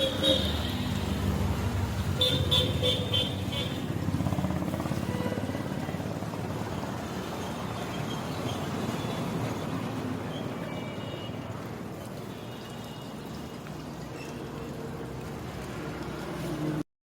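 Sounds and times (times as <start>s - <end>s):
vehicle horn beeping: 0.0s - 1.0s, 2.2s - 3.8s, 5.0s - 5.5s.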